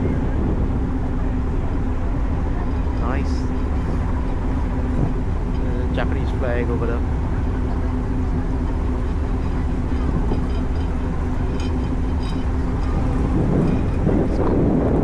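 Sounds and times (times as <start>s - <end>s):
ferry engines droning: 0.0s - 15.0s
wind rushing over microphone: 0.0s - 15.0s.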